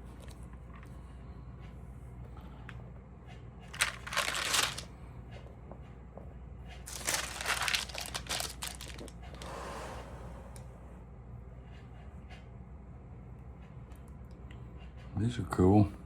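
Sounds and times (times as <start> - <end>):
steady low hum: 0.0 - 16.0
album pages being turned: 3.7 - 4.8, 6.9 - 9.1
plastic sleeves crinkling: 3.7 - 4.9, 6.9 - 9.4.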